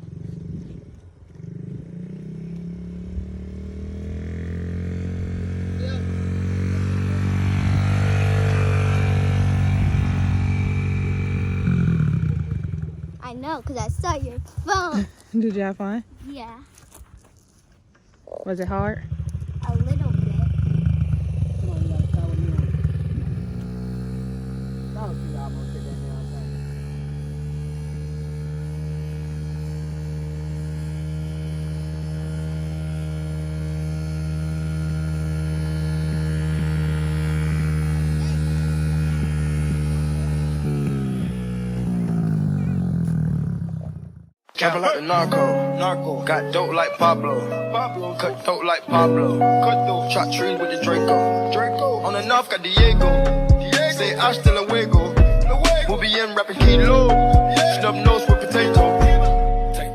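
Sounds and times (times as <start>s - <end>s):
dirt bike engine running: 0.0s - 16.0s, 18.5s - 44.4s, 51.2s - 59.9s.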